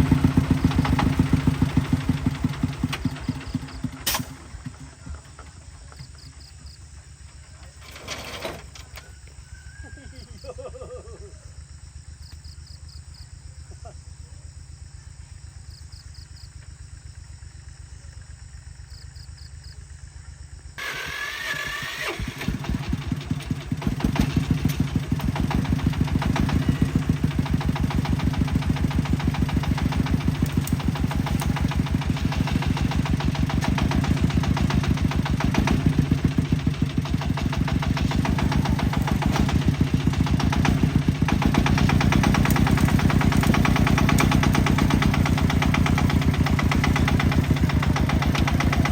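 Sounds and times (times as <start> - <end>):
faint pulsing engine: 0.0 - 8.0, 8.6 - 48.9
tractor engine starting and running: 0.0 - 48.9
insect chirps: 2.9 - 20.8.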